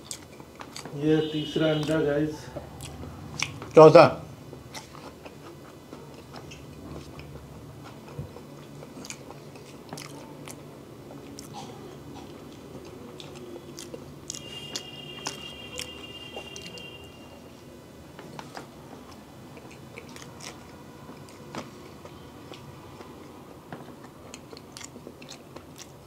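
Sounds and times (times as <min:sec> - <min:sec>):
person chewing egg: 0:00.0 - 0:01.0, 0:02.6 - 0:03.8, 0:04.5 - 0:16.9, 0:18.3 - 0:26.0
wet mouth clicks: 0:02.7 - 0:03.8.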